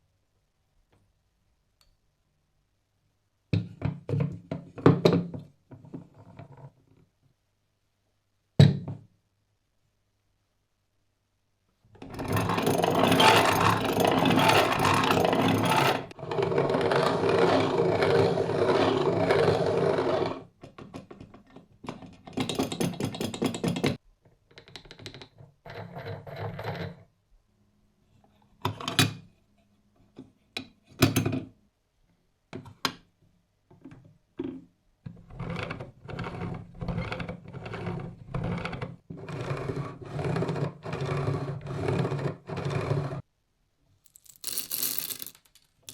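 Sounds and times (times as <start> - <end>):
coffee grinder scraping: 12.0 - 20.5.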